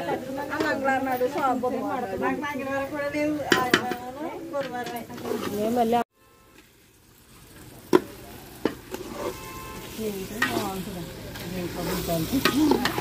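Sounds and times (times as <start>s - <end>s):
ladle scraping pot: 4.6s - 5.8s, 8.6s - 10.8s, 11.4s - 13.0s
chicken sizzling in pot: 5.0s - 13.0s.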